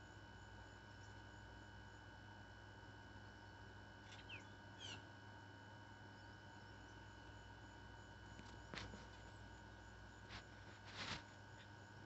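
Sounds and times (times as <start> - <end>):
faint high bird chirps: 3.2 - 5.2.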